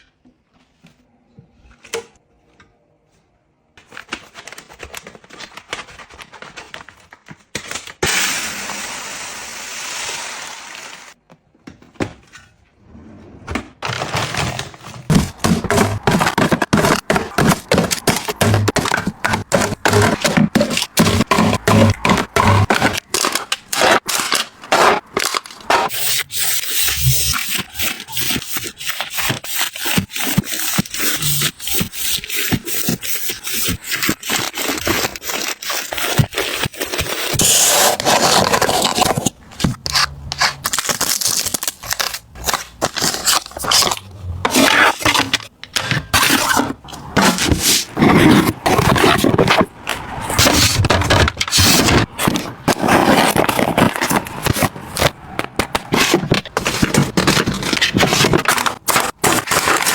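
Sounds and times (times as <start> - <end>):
household items clicking and scraping: 13.5 - 59.9.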